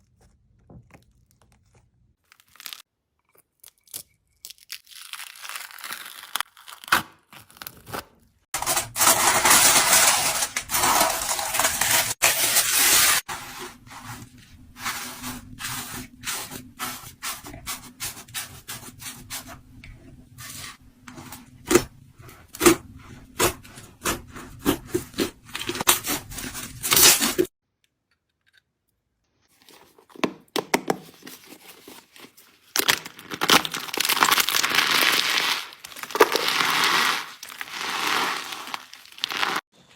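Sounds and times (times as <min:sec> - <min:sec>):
slime crinkling and crunching: 0:00.0 - 0:02.9, 0:03.7 - 0:08.0, 0:31.0 - 0:39.7.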